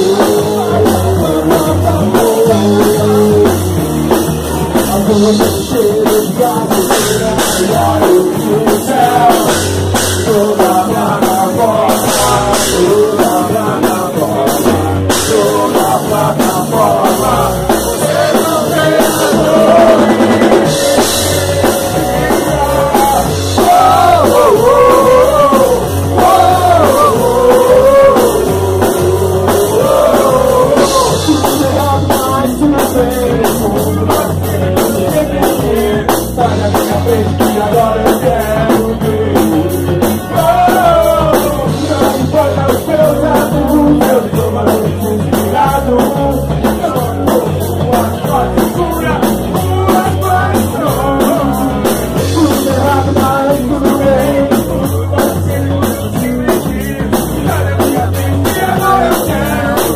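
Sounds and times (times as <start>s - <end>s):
drum-kit beat: 0.0s - 59.9s
lead singer singing: 0.0s - 59.9s
rock band playing: 0.0s - 59.9s.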